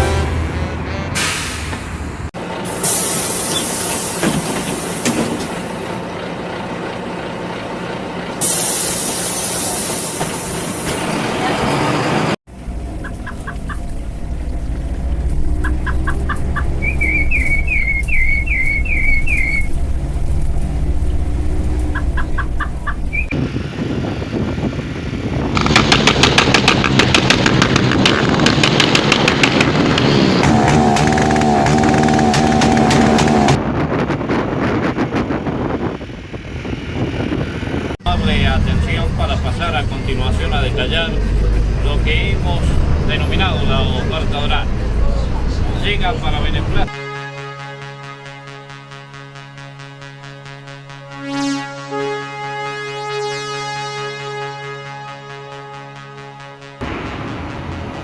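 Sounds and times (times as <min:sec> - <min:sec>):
engine running: 0:00.0 - 0:46.9
vehicle rumble: 0:00.0 - 0:46.9, 0:56.8 - 0:58.0
loud hiss: 0:02.7 - 0:05.8, 0:08.4 - 0:11.0.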